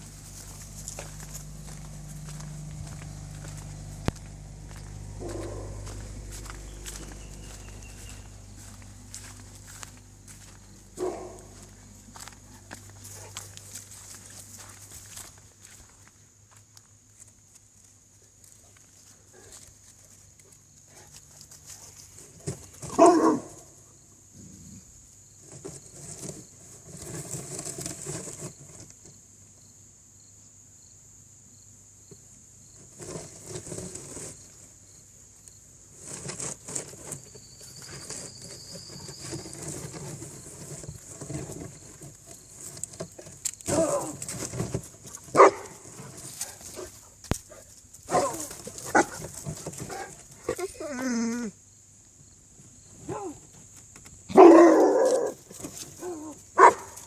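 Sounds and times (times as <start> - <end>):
scuffling noises: 0.0 - 23.7, 32.8 - 34.9, 35.9 - 51.2.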